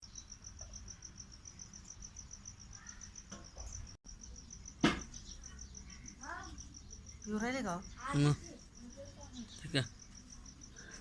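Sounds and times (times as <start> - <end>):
insect chirping: 0.0 - 11.0
sharp knock: 4.8 - 5.1.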